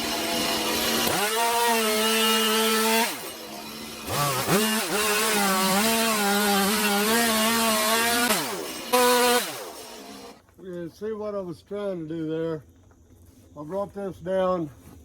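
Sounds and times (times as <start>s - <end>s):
chainsaw cutting into log: 0.0s - 10.4s.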